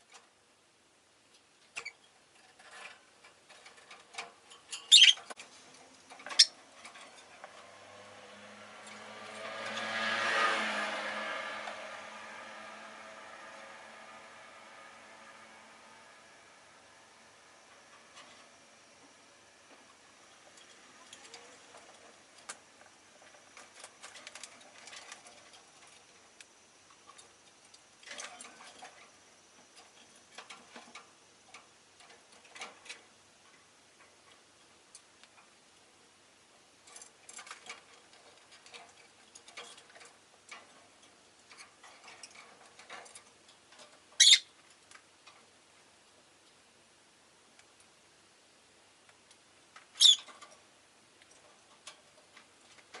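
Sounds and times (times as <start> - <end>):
lovebirds ticking and chirping: 4.8 - 5.4, 6.2 - 6.6, 44.2 - 44.6, 49.9 - 50.4
loud sharp bird chirp: 4.9 - 5.2, 44.2 - 44.5, 50.0 - 50.3.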